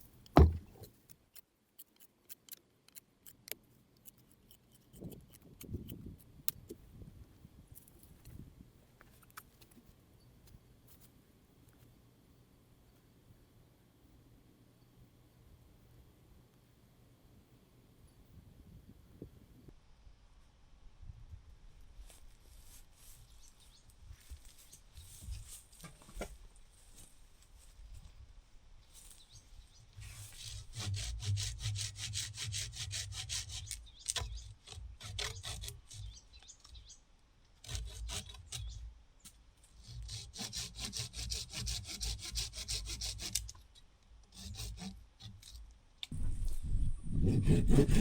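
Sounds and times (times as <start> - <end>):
hand saw cutting wood: 30.0 - 36.2, 37.6 - 38.8, 39.6 - 43.6, 44.2 - 45.6, 47.1 - 48.0.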